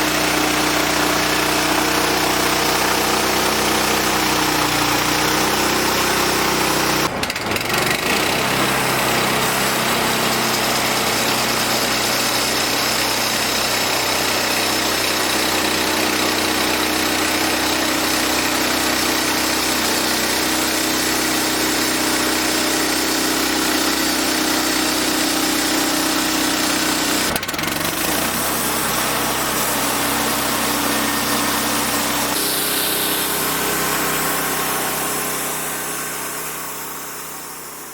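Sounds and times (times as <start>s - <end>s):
band blade sawing wood: 0.0s - 37.9s
small petrol engine running: 0.0s - 37.9s.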